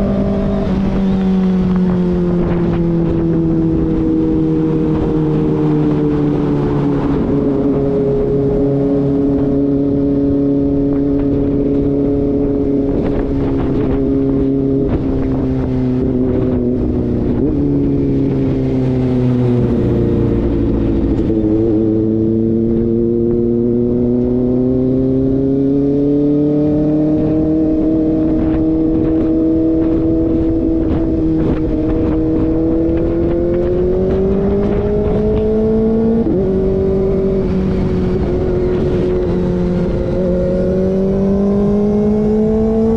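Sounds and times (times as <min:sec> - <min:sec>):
motorcycle engine: 0:00.0 - 0:42.9.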